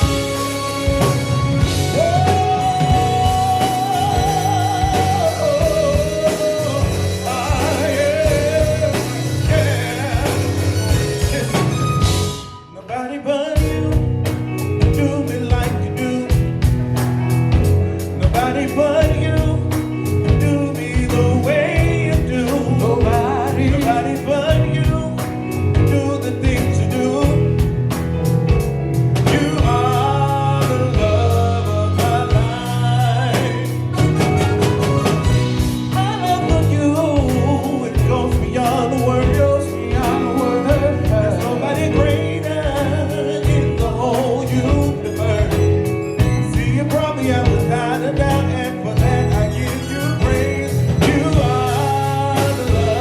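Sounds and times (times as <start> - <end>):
band with steady beat: 0.0 - 12.8, 13.4 - 53.0
person singing lead: 0.0 - 16.5, 18.2 - 27.7, 29.2 - 53.0.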